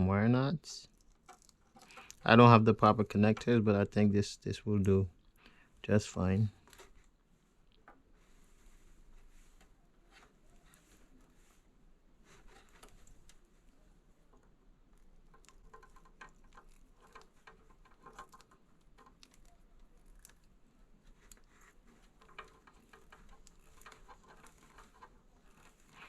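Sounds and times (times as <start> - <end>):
wires clicking and rustling: 0.8 - 3.8, 12.2 - 26.0.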